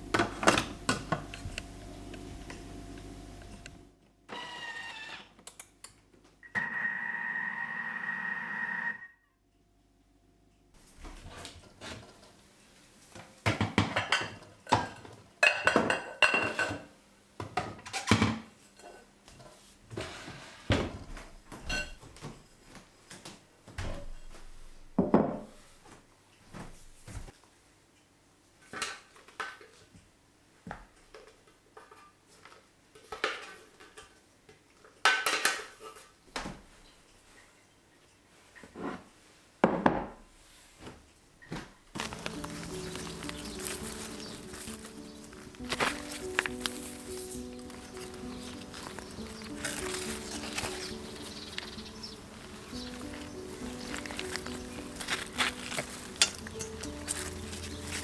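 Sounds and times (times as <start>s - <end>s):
dishes and pots clattering: 13.4s - 22.4s, 33.0s - 34.2s, 35.0s - 36.1s, 42.0s - 58.0s.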